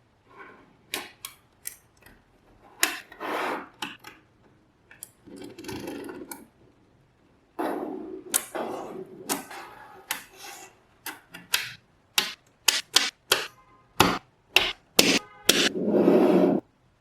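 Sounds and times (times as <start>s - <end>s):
magnetic balls clicking together: 11.0s - 15.7s.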